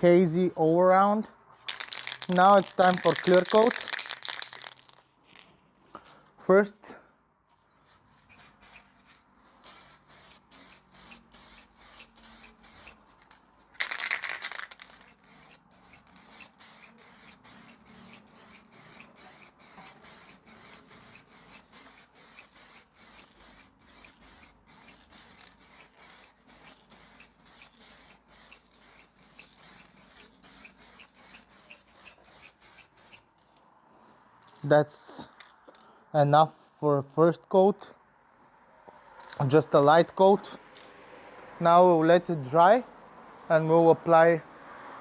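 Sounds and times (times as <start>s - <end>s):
spray can hissing: 1.7s - 5.0s, 8.3s - 9.0s, 9.6s - 13.1s, 13.8s - 33.2s.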